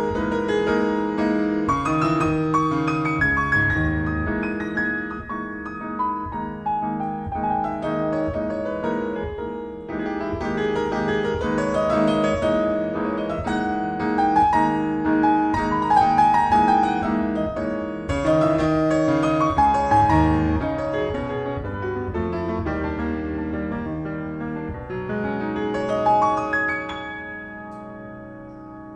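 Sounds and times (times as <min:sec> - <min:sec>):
solo piano melody: 0:00.0 - 0:28.9.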